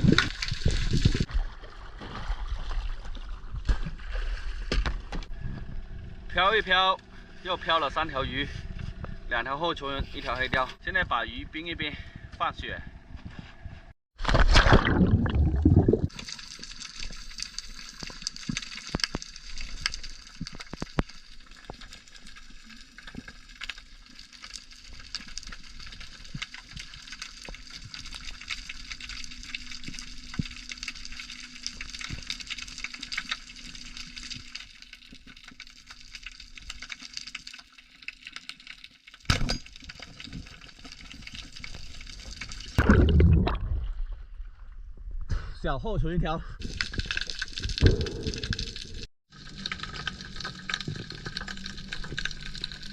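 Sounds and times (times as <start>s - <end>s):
small crackling clicks: 16.2s - 42.8s, 46.6s - 52.9s.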